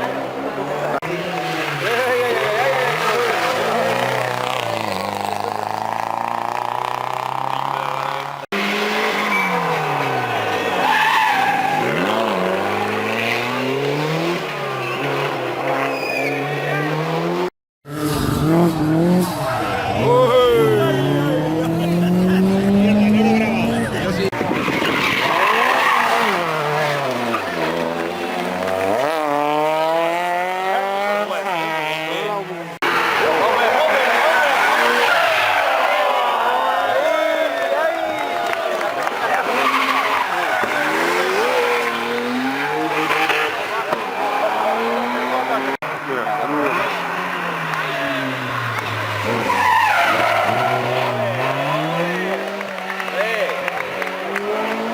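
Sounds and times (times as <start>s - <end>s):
rally car engine revving: 0.0s - 36.7s, 38.1s - 54.9s
tyres squealing: 9.0s - 13.4s, 14.7s - 16.7s, 39.2s - 45.1s, 46.3s - 52.0s.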